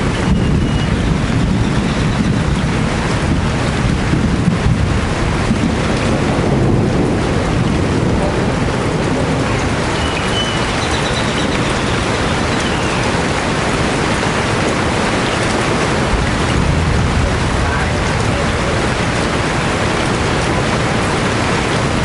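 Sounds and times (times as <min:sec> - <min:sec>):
heavy rain: 0:00.0 - 0:22.0
faint high bird chirp: 0:00.2 - 0:00.9, 0:10.0 - 0:13.1
low rumble: 0:15.7 - 0:22.0.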